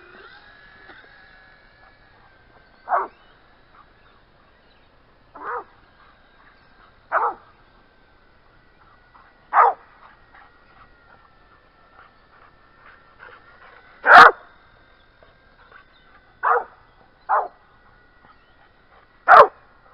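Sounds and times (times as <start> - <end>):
faint high whine: 0.0 - 19.9
dog barking: 2.9 - 3.2, 5.4 - 5.7, 7.1 - 7.4, 9.5 - 9.8, 14.0 - 14.4, 16.4 - 17.6, 19.3 - 19.6.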